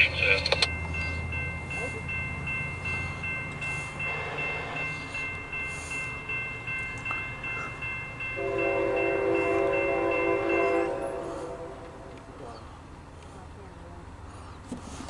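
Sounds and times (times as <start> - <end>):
diesel locomotive rumble: 0.0 - 15.0
locomotive air horn chord: 8.4 - 12.4.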